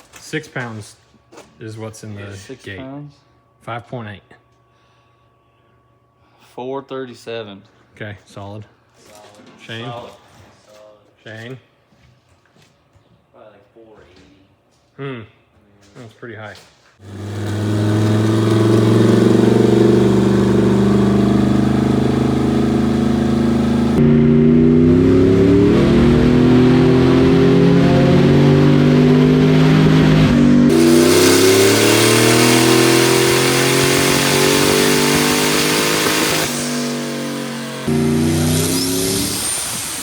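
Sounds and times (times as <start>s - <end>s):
engine running hard under load: 17.0s - 40.0s.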